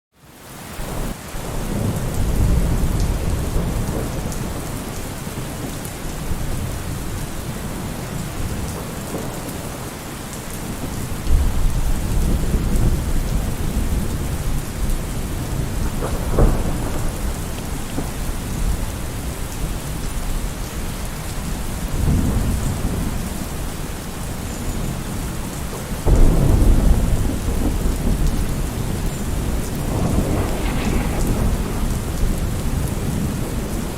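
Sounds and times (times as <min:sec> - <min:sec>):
heavy rain: 0:00.2 - 0:33.9
rolling thunder: 0:01.4 - 0:09.8, 0:10.6 - 0:20.3, 0:26.0 - 0:33.9.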